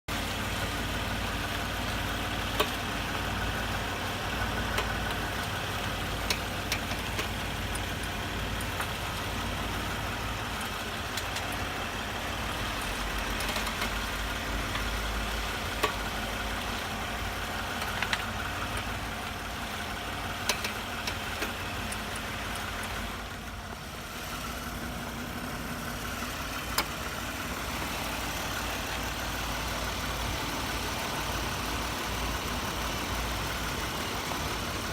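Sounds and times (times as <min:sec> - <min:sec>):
vehicle running noise: 0:00.1 - 0:34.9.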